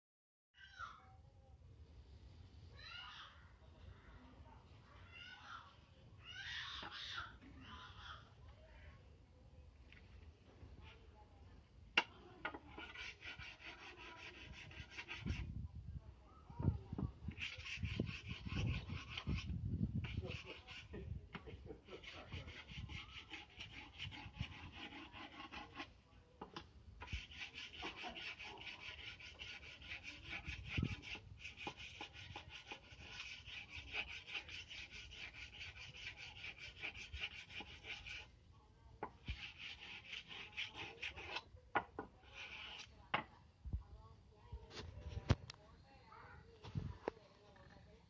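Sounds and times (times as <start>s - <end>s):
blade sharpening scraping strokes: 12.4s - 15.4s, 17.3s - 21.0s, 21.8s - 25.9s, 27.0s - 38.3s, 39.0s - 41.5s, 42.2s - 42.9s.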